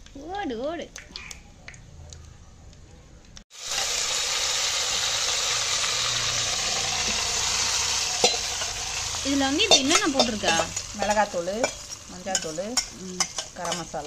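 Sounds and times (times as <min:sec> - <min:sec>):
hot oil sizzling in clay pot: 0:03.5 - 0:14.0.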